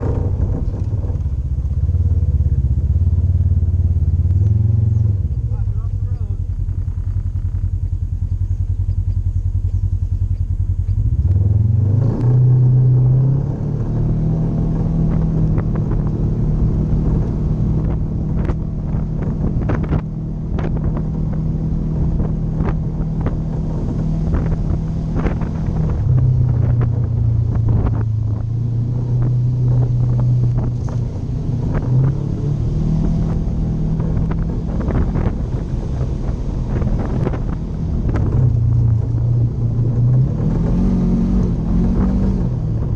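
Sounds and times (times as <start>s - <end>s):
vehicle engine running: 0.0s - 42.9s.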